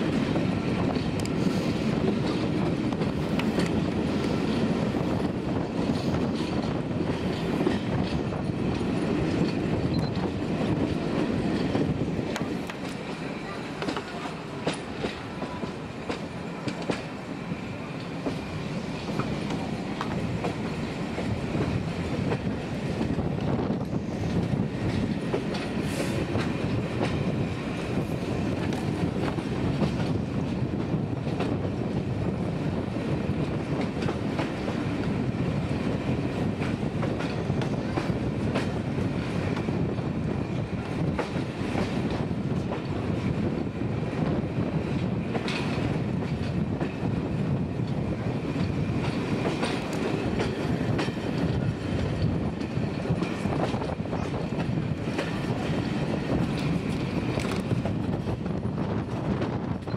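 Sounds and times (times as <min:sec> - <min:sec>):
train wheels rumbling on rails: 0:00.0 - 0:59.9
faint clicks: 0:01.2 - 0:01.4.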